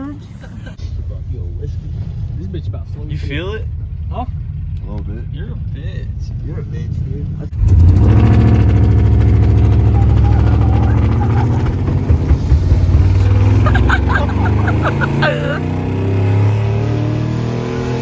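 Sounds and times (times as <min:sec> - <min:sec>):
truck engine revving hard: 0:07.5 - 0:18.0.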